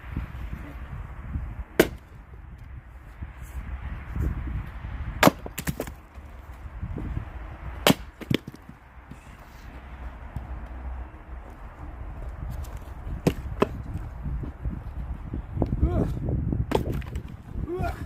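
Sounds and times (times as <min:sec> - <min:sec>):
axe striking wood: 0:01.8 - 0:02.2, 0:05.2 - 0:06.0, 0:07.8 - 0:08.7, 0:16.7 - 0:17.3.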